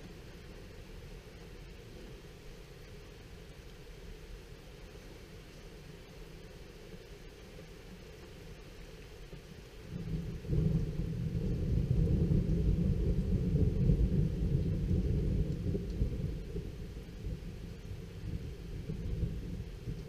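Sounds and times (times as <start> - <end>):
rolling thunder: 10.0 - 20.0.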